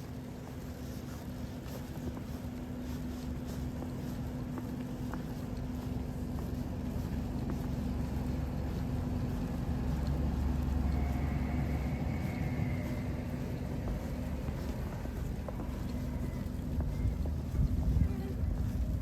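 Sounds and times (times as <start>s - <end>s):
vehicle engine drone passing: 9.6s - 14.7s.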